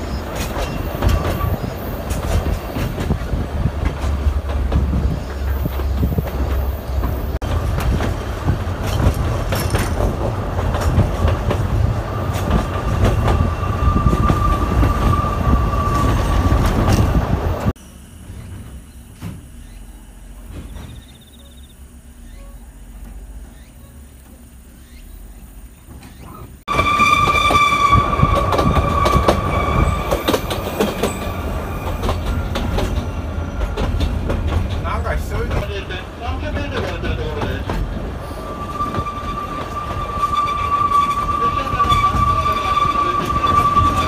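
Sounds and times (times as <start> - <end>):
train wheels clattering on rail: 0.0 - 17.7, 20.4 - 21.3, 25.8 - 44.0
thin wheel squeal: 26.0 - 33.2, 38.2 - 44.0.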